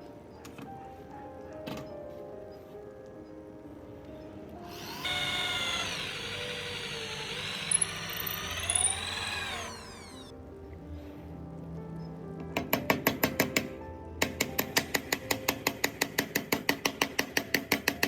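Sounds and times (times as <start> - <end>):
electric power tool motor: 4.7 - 10.3
sharp squeals: 4.8 - 10.3.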